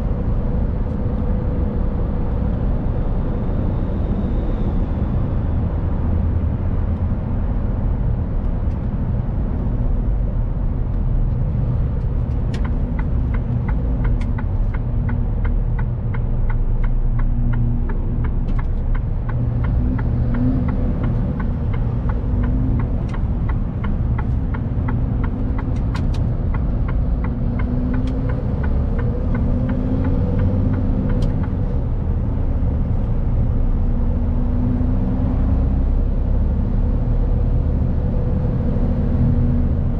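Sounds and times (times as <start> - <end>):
truck engine and road rumble: 0.0 - 39.9
even ticks: 12.0 - 31.6.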